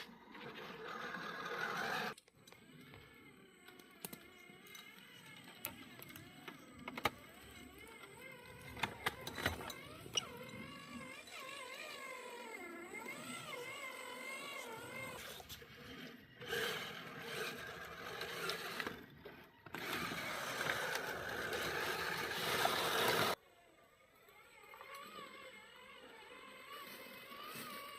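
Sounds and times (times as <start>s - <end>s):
electric motor whining: 0.0s - 23.4s, 24.0s - 27.9s
rough grinding and rustling: 13.0s - 23.4s.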